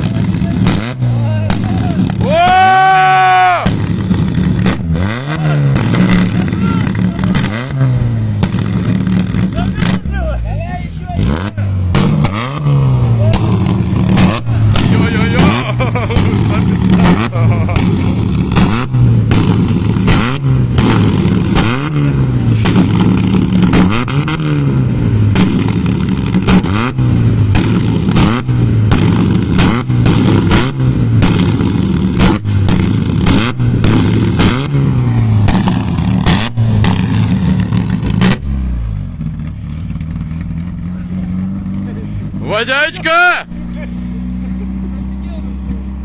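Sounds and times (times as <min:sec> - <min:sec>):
engine revving: 0:00.0 - 0:46.0.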